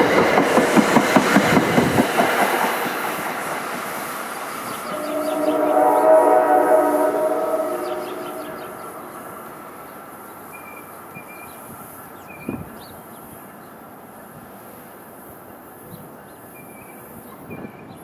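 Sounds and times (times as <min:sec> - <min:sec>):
train rumble: 0:00.0 - 0:18.0
birds chirping: 0:04.5 - 0:13.8
train horn: 0:04.8 - 0:09.6.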